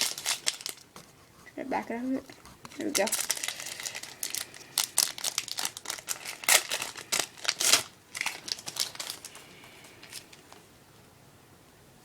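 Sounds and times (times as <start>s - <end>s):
foil wrapper crinkling: 0.0s - 1.0s, 2.8s - 10.6s.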